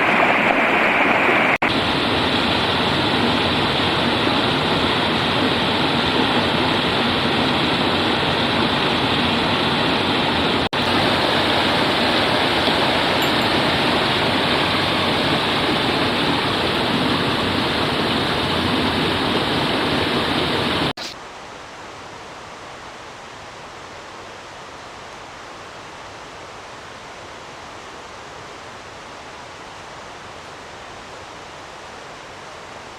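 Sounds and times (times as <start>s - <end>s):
mountain river rushing: 0.0s - 32.9s.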